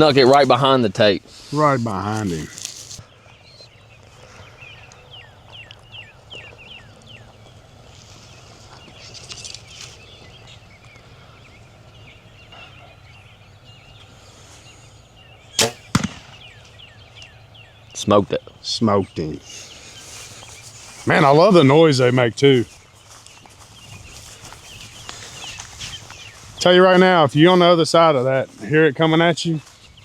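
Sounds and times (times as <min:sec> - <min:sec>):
bird chirping: 0:00.0 - 0:30.0
bow string release crack: 0:15.6 - 0:16.4
arrow striking target: 0:15.6 - 0:16.5.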